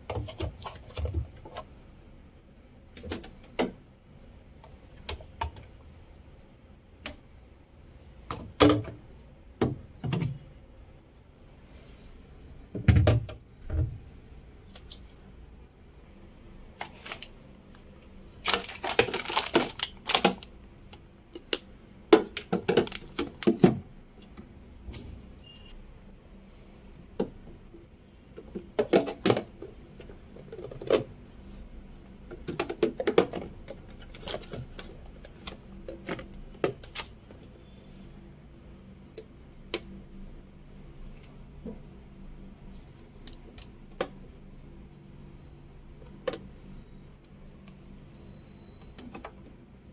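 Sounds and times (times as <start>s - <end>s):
groceries handled in refrigerator: 16.5s - 17.4s, 18.0s - 21.6s, 22.2s - 24.4s.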